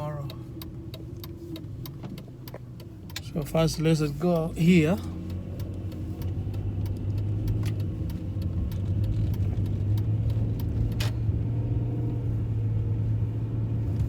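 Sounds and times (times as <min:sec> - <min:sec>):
car cabin hum: 0:00.0 - 0:14.0.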